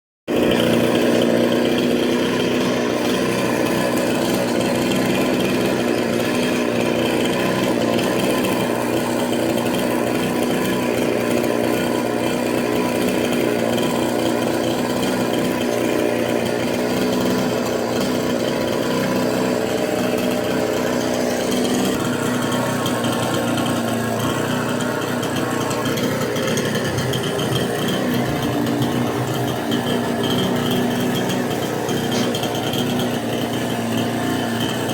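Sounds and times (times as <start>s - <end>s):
chainsaw running: 0.3s - 34.9s.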